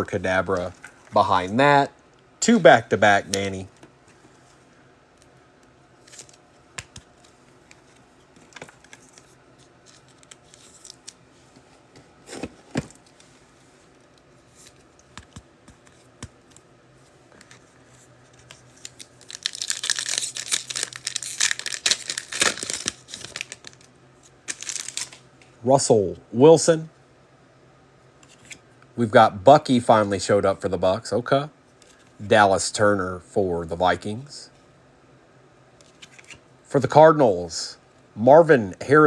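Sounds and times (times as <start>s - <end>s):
wrapper rustles and clicks: 18.4s - 23.9s, 24.5s - 25.2s
foil wrapper crinkling and tearing: 18.8s - 23.9s, 24.5s - 25.2s.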